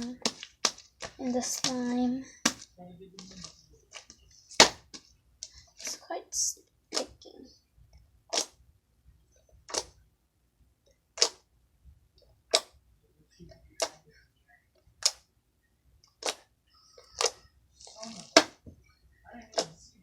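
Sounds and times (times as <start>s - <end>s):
sticky slime popping: 0.0s - 5.1s, 6.9s - 7.2s, 8.3s - 8.6s, 9.6s - 10.0s, 11.1s - 11.4s, 12.5s - 12.8s, 13.8s - 14.0s, 15.0s - 15.3s, 16.1s - 18.7s.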